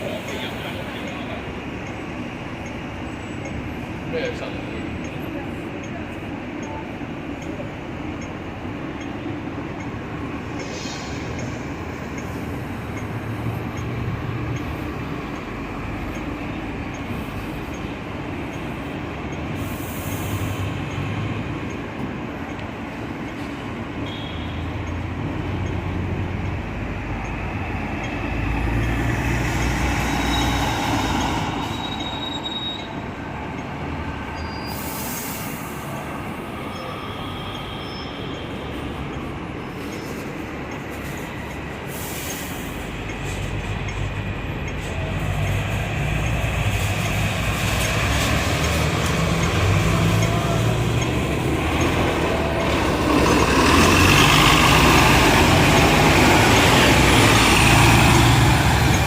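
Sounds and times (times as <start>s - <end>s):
tram wheels rumbling on rails: 0.0s - 59.0s
high wheel squeals: 30.0s - 33.1s, 34.2s - 35.7s, 36.6s - 39.0s.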